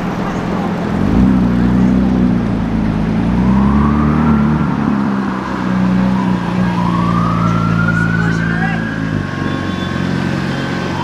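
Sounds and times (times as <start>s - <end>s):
car engine running: 0.0s - 11.0s
siren whine: 3.1s - 11.0s.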